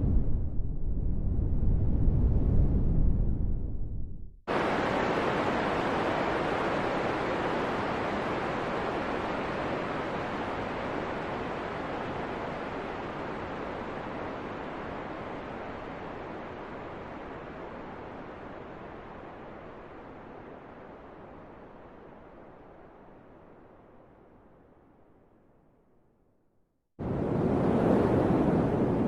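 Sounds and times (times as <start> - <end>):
deep low wind: 0.0 - 24.5
hissing wind: 4.5 - 23.9, 27.0 - 29.0.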